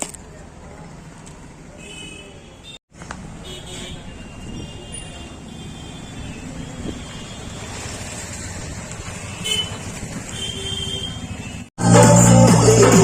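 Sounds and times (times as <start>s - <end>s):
outdoor traffic noise: 0.0s - 11.8s
loud music: 11.8s - 13.0s.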